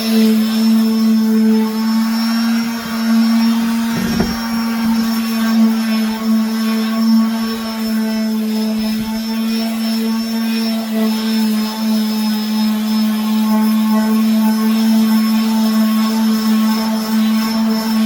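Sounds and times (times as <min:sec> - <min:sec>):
electric sander humming: 0:02.6 - 0:05.1
brief bump: 0:03.7 - 0:05.2.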